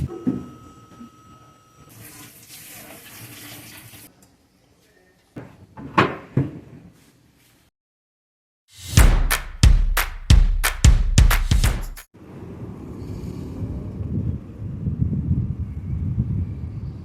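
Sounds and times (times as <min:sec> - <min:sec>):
water running from a tap: 0:01.9 - 0:04.1.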